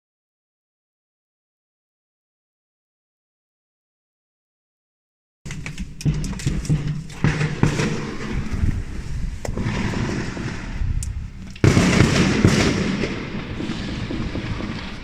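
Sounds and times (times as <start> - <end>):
fireworks cracks and pops: 5.5 - 15.0
loud fireworks blast: 5.5 - 15.0
low rumble of bangs: 5.5 - 15.0.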